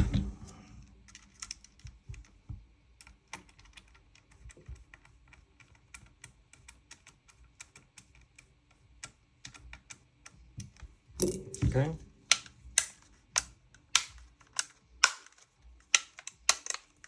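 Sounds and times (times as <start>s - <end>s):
small gun parts clicking: 12.3s - 17.0s.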